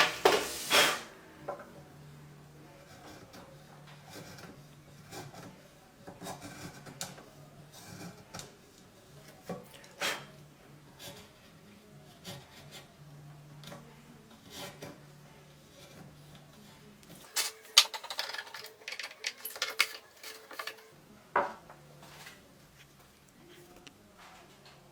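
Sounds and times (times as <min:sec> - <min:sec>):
scraping and clicking on wood: 0:17.1 - 0:20.9.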